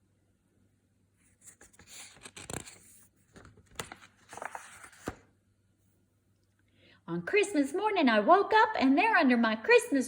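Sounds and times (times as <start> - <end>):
paper rustling: 1.2 - 5.3
book page clicks: 1.4 - 5.3.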